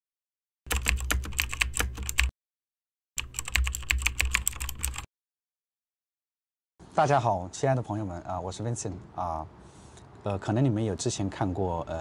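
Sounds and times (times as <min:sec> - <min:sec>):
keyboard typing: 0:00.7 - 0:02.3, 0:03.2 - 0:05.1.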